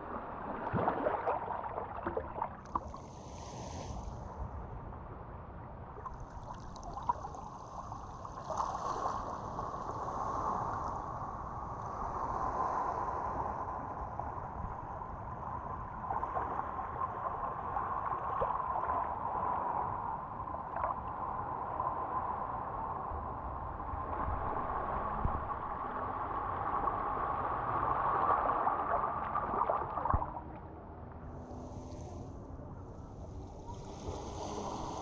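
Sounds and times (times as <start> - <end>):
water sloshing and lapping: 0.0 - 3.9, 6.0 - 11.0, 27.7 - 30.6.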